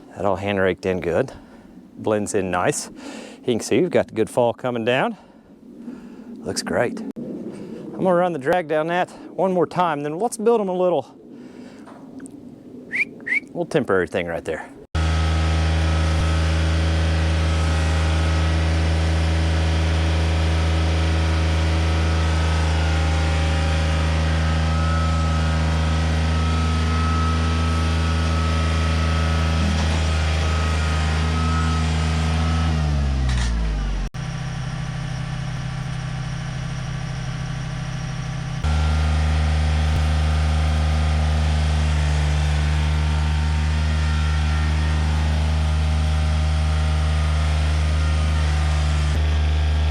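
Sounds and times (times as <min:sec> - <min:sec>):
tractor diesel engine running: 0:15.0 - 0:49.9.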